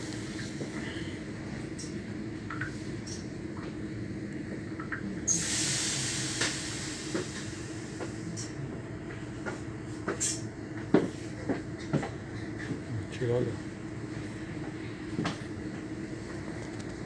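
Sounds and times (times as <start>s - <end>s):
train carriage running hum: 0.0s - 17.0s
loud hiss: 5.3s - 7.9s.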